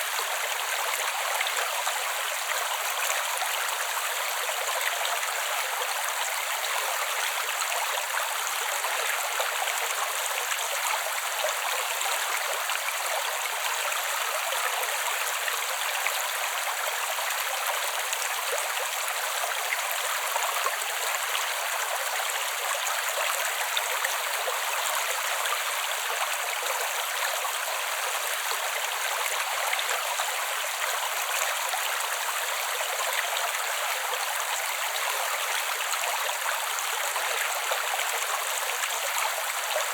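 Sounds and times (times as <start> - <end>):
creek water babbling: 0.0 - 39.9.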